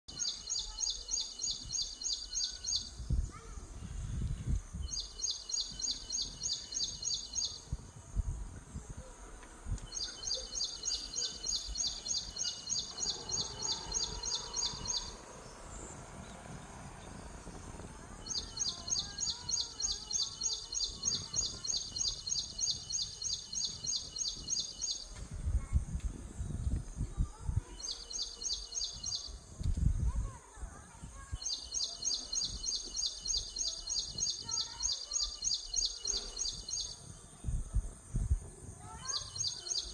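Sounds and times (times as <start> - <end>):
bird chirping rapidly: 0.1 - 3.1, 4.8 - 7.8, 9.9 - 15.9, 18.2 - 25.1, 27.8 - 29.4, 31.3 - 37.0, 39.0 - 39.9
low rumbling thumps: 13.2 - 18.6.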